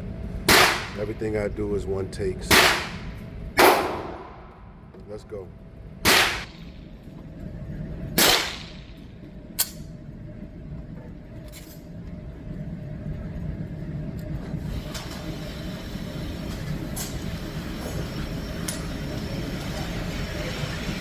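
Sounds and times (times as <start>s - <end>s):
shooting range background noise: 0.0s - 21.0s
distant gunshots: 0.5s - 1.1s, 2.5s - 4.5s, 6.1s - 6.6s, 8.2s - 8.9s
pistol shot: 0.5s - 1.1s, 2.5s - 4.5s, 6.0s - 6.6s, 8.2s - 9.0s
sharp gunshot crack: 0.5s - 1.1s, 2.5s - 4.5s, 6.0s - 6.6s, 8.2s - 8.9s.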